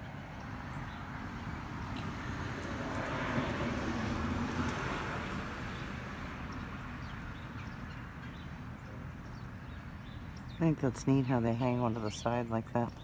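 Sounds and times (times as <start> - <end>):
vehicle passing by: 0.1 - 8.9.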